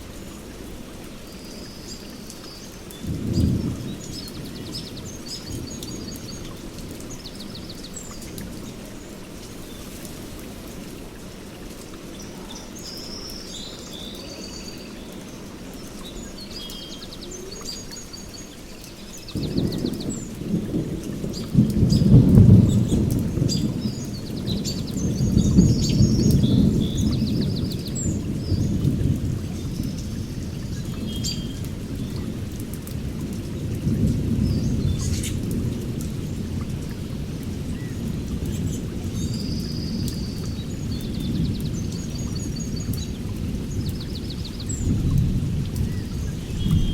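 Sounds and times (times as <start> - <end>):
rain: 0.0 - 46.9
rolling thunder: 3.0 - 7.7, 19.3 - 46.9.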